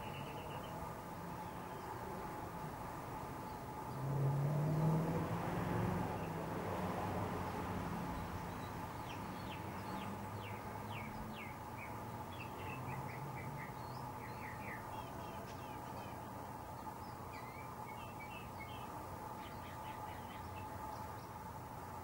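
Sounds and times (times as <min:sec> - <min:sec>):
small birds chirping: 0:00.0 - 0:02.3, 0:07.4 - 0:21.5.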